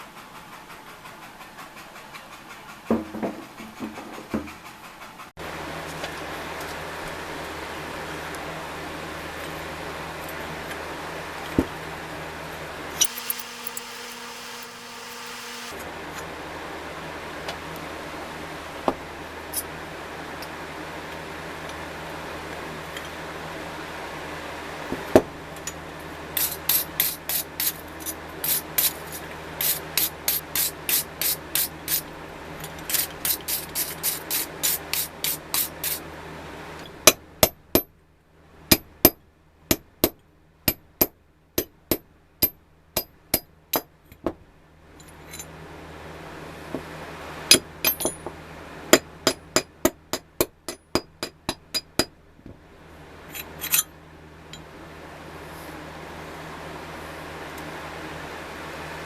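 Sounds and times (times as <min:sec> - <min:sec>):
steady hum: 0:13.0 - 0:15.8.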